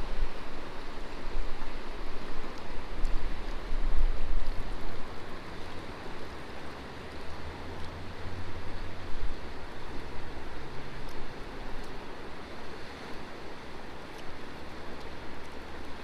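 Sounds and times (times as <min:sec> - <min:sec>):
river water rushing: 0:00.0 - 0:16.0
wind rumble on microphone: 0:00.0 - 0:16.0.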